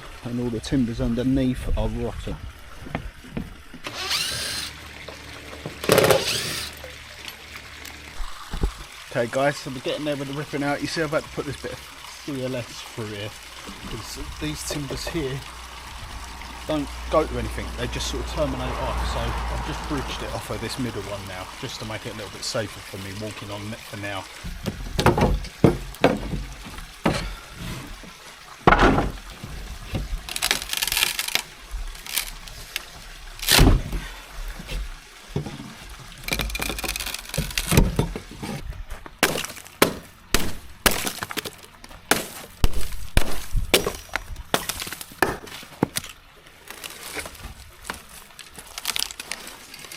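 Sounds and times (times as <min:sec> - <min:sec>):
wood cracking and splintering: 0:24.4 - 0:34.1, 0:34.7 - 0:49.9.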